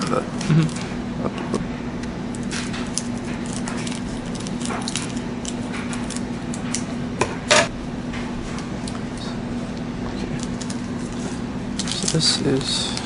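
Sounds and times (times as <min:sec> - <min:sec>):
foil wrapper crinkling: 0:02.3 - 0:06.8, 0:10.2 - 0:13.0.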